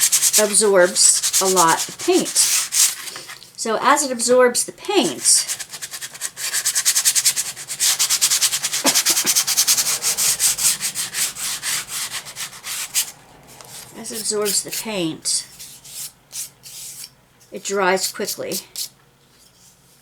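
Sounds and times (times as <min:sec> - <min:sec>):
sanding strokes on wood: 0:00.0 - 0:03.1, 0:05.2 - 0:14.9.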